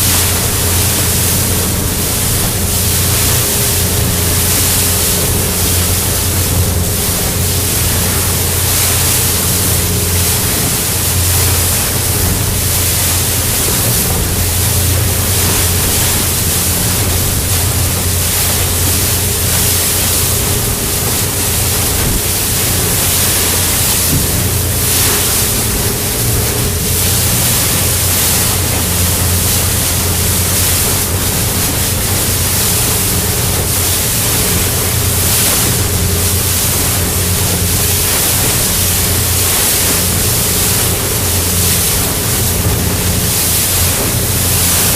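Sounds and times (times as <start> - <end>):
boat engine humming: 0.0 - 44.9
rushing water: 0.0 - 44.9
wind noise on microphone: 0.0 - 44.9.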